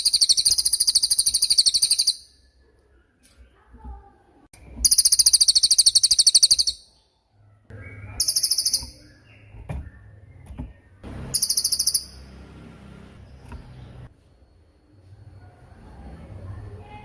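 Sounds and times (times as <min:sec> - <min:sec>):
bird singing sharp trills: 0:00.0 - 0:02.5, 0:04.8 - 0:12.4.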